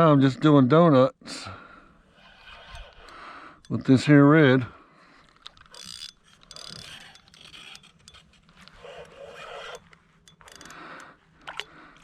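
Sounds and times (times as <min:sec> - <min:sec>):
fishing reel winding in line: 0:02.1 - 0:04.1, 0:05.2 - 0:12.0
sharp reel clicks: 0:02.2 - 0:03.8, 0:05.2 - 0:12.0.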